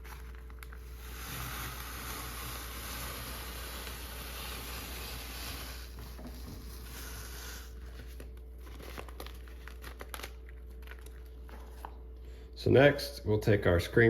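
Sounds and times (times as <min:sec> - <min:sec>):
tape crinkling: 0:00.0 - 0:01.0, 0:06.0 - 0:12.1.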